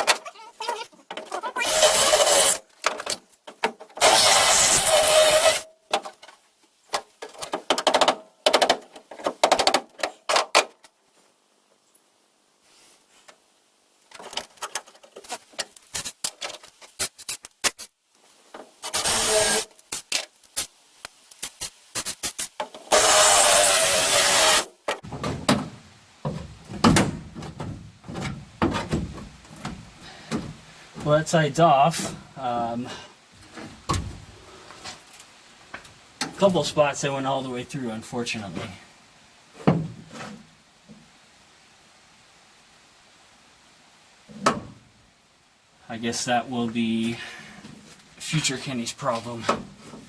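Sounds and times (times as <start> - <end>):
power drill boring into sheet metal: 1.6 - 2.6, 4.0 - 5.6, 18.9 - 19.7, 22.9 - 24.7
metal knocks and clanks: 25.0 - 30.6.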